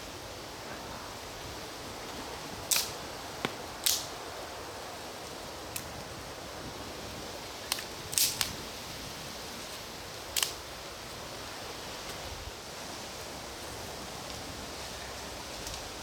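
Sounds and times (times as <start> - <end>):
steady hiss: 0.0 - 16.0
campfire wood popping and cracking: 2.6 - 4.2, 7.6 - 8.6, 10.4 - 10.6.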